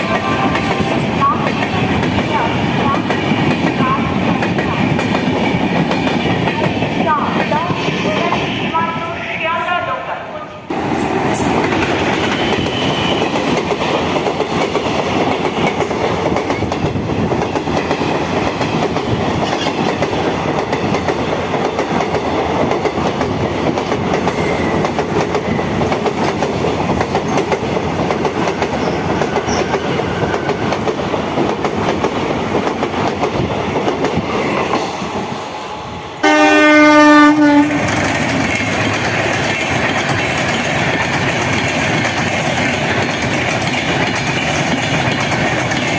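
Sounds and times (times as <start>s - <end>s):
train coaches clattering on rails: 0.0s - 9.0s, 10.7s - 35.4s, 36.2s - 45.9s
locomotive horn: 36.2s - 37.8s.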